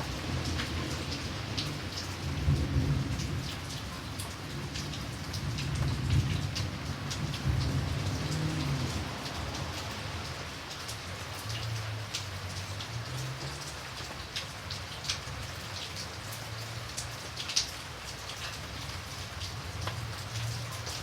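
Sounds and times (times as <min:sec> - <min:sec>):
rain drops ticking: 0:00.0 - 0:21.0
distant thunder rumbling: 0:04.5 - 0:10.2.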